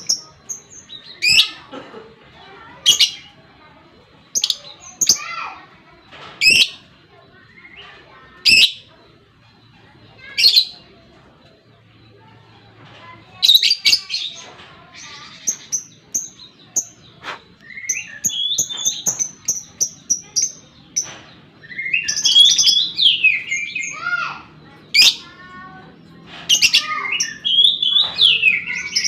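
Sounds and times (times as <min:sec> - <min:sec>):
lovebird chirping: 0:13.4 - 0:25.6.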